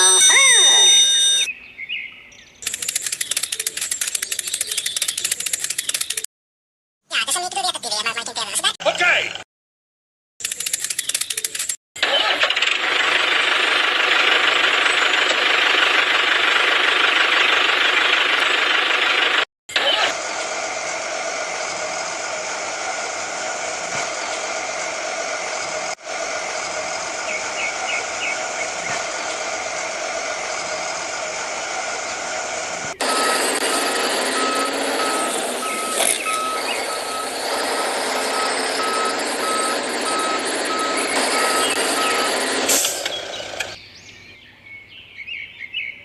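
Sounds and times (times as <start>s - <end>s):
reversing beeper short beeps: 0.0s - 1.5s, 33.0s - 43.1s
truck engine running: 12.1s - 43.8s.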